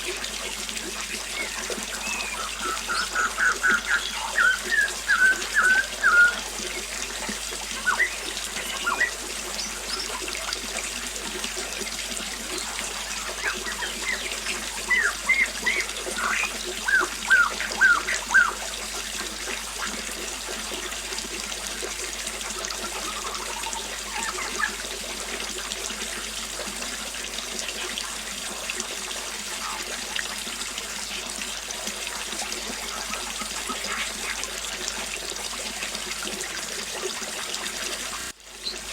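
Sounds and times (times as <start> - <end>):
small waterfall splashing: 0.0 - 38.9
birds chirping: 1.3 - 10.4, 12.4 - 18.7, 22.8 - 24.8.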